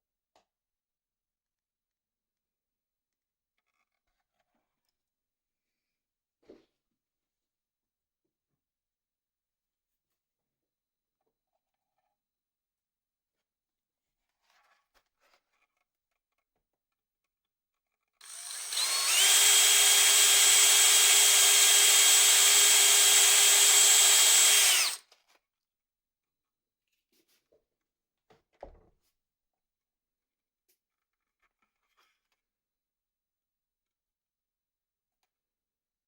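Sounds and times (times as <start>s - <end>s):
power drill whining: 18.2s - 25.0s.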